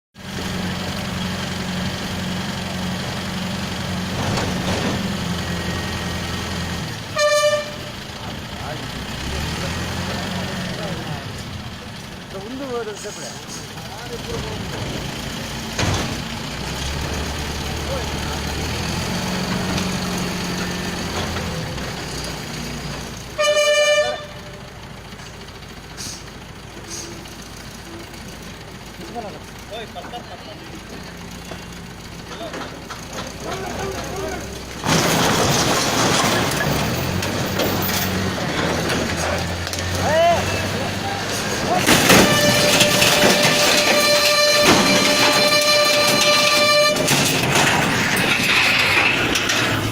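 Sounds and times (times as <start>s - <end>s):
diesel engine running: 0.2s - 49.9s
vehicle horn blast: 7.1s - 8.1s, 23.3s - 24.6s, 41.9s - 47.3s.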